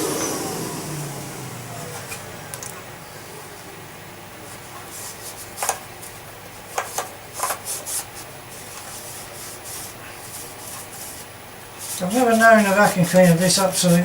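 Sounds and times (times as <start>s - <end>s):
hand scraping dirt off parts: 4.5s - 14.0s.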